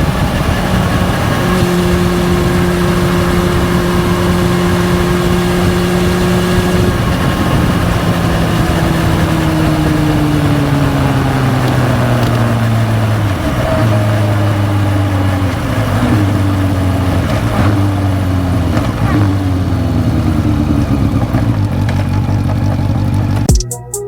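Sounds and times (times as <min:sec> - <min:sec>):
motorcycle gear change: 0:00.0 - 0:23.5
motorcycle engine exhaust: 0:00.0 - 0:23.8.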